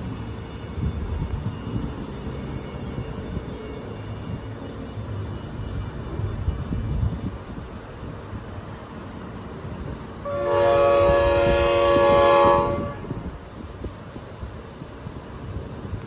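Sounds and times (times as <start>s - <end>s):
train rumbling: 0.0s - 16.0s
locomotive air horn blast: 10.2s - 13.3s.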